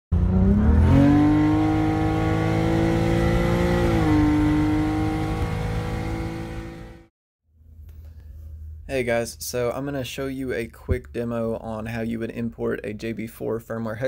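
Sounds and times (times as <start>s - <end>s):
car engine revving: 0.1s - 7.1s.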